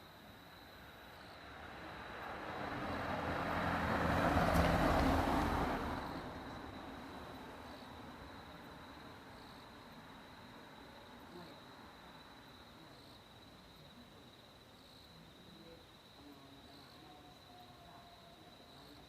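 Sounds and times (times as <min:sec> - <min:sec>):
vehicle driving past: 0:01.4 - 0:08.9.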